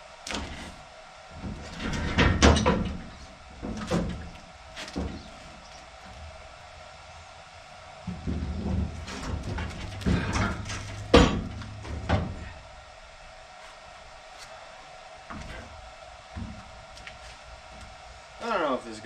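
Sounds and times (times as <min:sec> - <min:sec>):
steel hoist scraping and clunking: 0:00.3 - 0:06.6, 0:08.0 - 0:12.7.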